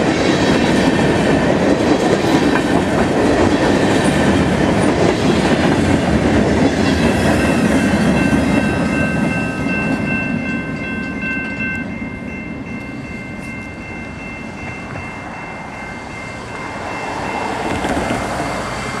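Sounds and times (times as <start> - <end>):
freight train wheels rumbling: 0.0 - 19.0
steady high ringing tones: 7.1 - 17.7.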